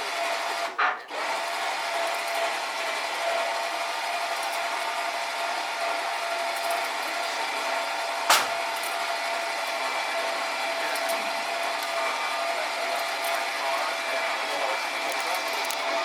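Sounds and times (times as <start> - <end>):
machine motor whining: 0.0 - 16.0
sharp knock: 8.3 - 8.6.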